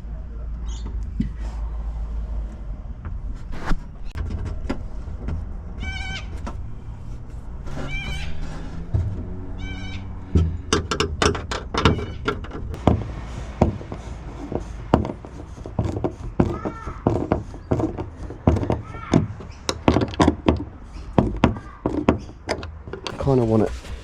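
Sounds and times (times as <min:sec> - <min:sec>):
hard parts clicking and knocking: 0:04.1 - 0:24.0
short squeaky pitched sounds: 0:07.6 - 0:10.3.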